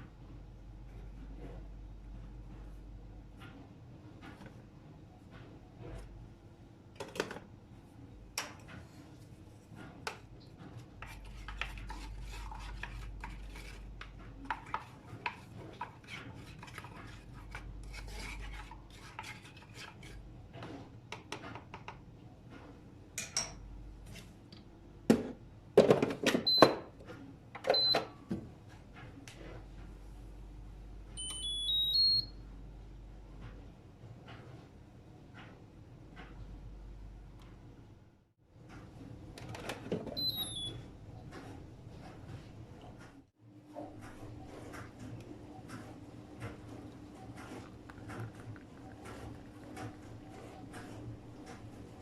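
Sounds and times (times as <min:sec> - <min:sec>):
rubbing and scraping: 0:10.6 - 0:20.9.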